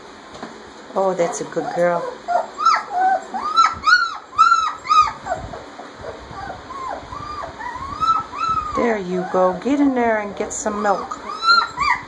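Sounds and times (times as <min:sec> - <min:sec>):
puppies whining and squealing: 0:01.2 - 0:12.0.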